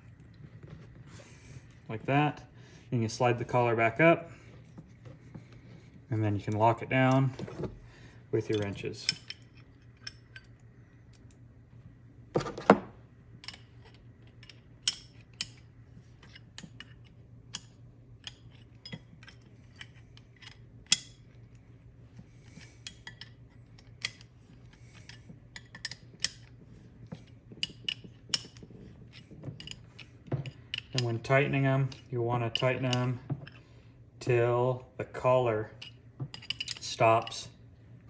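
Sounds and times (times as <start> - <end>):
wrenches clinking on metal fittings: 8.4 - 10.6, 27.6 - 33.6, 35.7 - 37.4.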